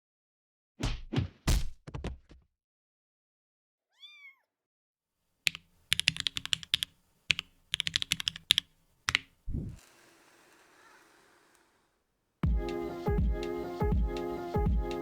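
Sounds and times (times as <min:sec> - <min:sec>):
cat meowing: 0:03.9 - 0:04.5
mechanical keyboard typing: 0:05.5 - 0:09.3.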